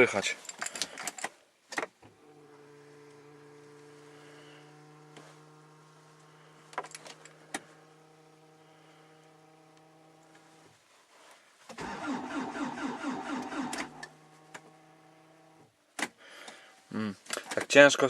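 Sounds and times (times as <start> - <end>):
fuel pump humming: 2.0 - 10.7, 11.8 - 15.7.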